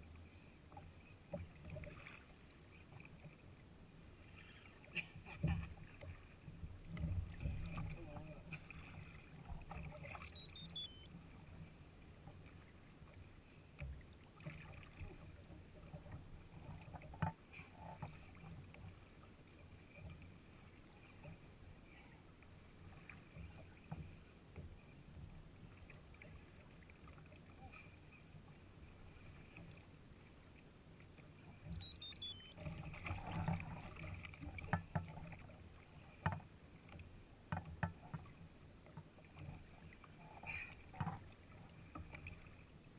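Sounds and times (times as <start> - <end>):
water lapping at kayak hull: 0.0 - 42.9
short high chirp: 10.2 - 11.1, 31.7 - 32.6.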